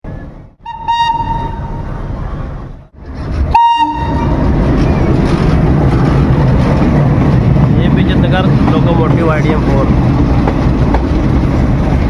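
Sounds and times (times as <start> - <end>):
train rumbling on track: 0.0 - 12.0
train horn blasts: 0.6 - 1.8, 3.5 - 4.4.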